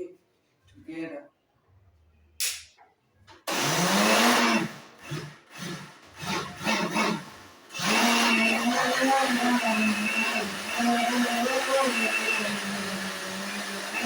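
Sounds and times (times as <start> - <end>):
blender motor grinding: 3.5 - 14.0.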